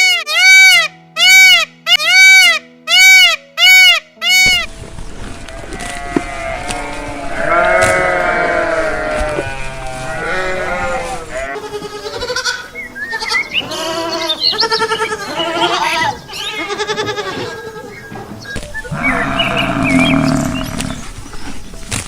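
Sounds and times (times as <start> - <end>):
goats or sheep bleating: 5.6 - 21.2.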